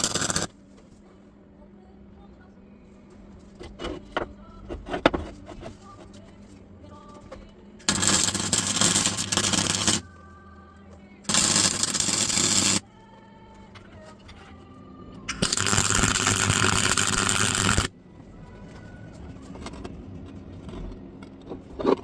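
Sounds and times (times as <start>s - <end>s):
welder crackling: 0.0s - 0.5s, 7.9s - 10.0s, 11.3s - 12.8s, 15.3s - 17.9s.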